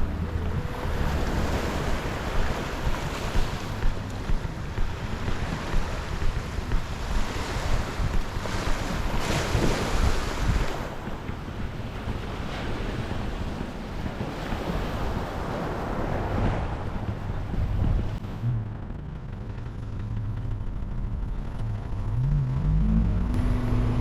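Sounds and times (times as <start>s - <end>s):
waves washing onto beach: 0.0s - 18.4s
wind buffeting microphone: 0.0s - 24.0s.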